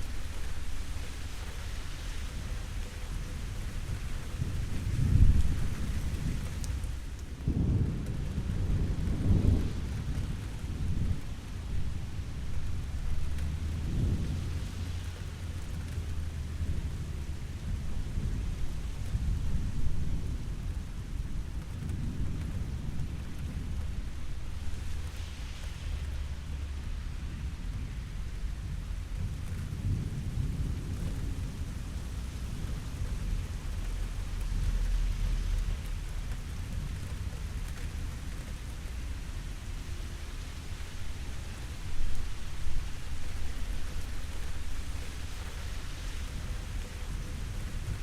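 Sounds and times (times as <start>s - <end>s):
steady rain: 0.0s - 48.0s
rolling thunder: 4.3s - 39.8s.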